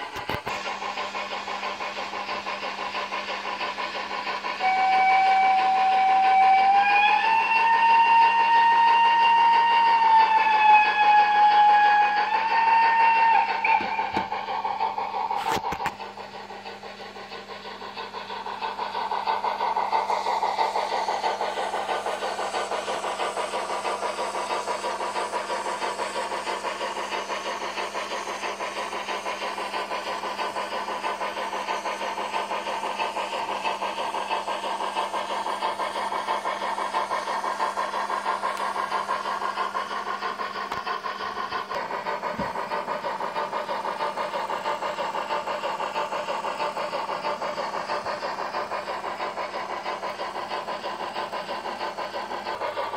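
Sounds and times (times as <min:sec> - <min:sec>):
steam engine chuffing from speaker: 0:00.0 - 0:52.9
click: 0:38.5 - 0:38.7, 0:40.7 - 0:40.9.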